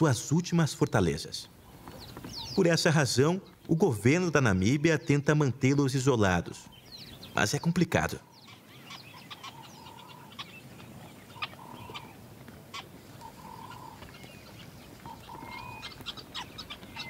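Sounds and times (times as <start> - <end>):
high bird chirps: 13.2 - 17.0.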